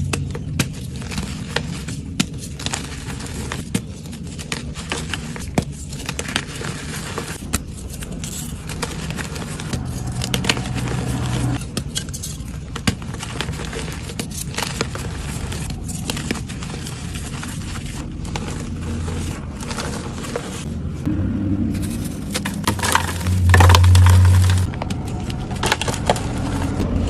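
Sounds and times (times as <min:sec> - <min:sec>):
chalk crunching and crackling: 0:00.0 - 0:21.0.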